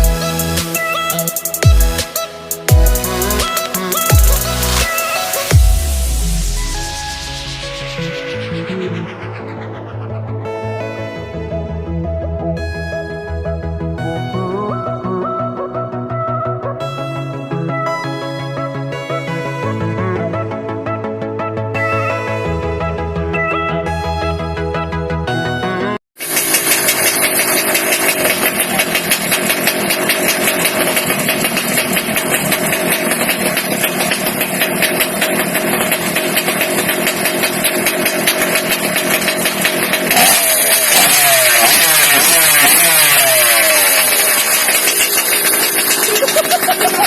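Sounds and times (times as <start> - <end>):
scooter engine revving: 0.0 - 11.7, 26.2 - 47.0
music intro: 0.0 - 19.6.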